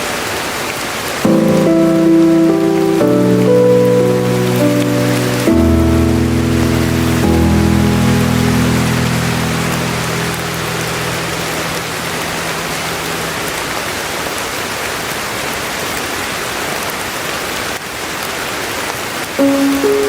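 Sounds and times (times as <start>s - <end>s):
steady rain falling: 0.0s - 20.0s
melody notes: 1.3s - 13.6s, 19.4s - 20.0s.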